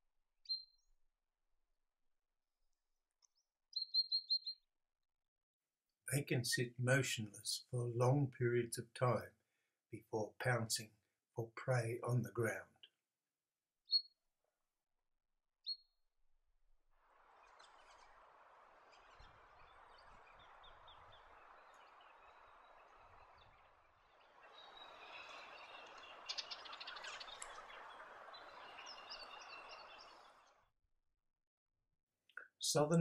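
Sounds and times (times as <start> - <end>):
high bird chirps: 0.5 - 0.8, 3.7 - 4.6, 13.9 - 14.1, 15.6 - 15.9, 18.9 - 30.5
small birds calling: 3.7 - 4.6, 19.0 - 30.6.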